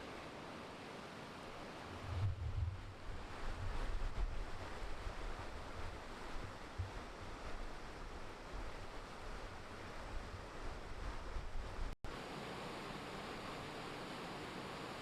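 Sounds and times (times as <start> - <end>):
wind buffeting microphone: 1.9 - 12.0
running water rushing: 5.5 - 15.0.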